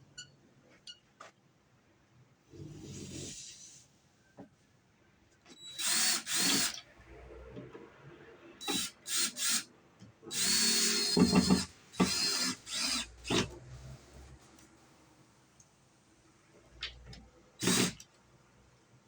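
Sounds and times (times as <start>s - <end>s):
cordless drill motor whine: 5.6s - 6.8s, 8.6s - 9.7s, 10.3s - 13.5s, 17.6s - 18.0s.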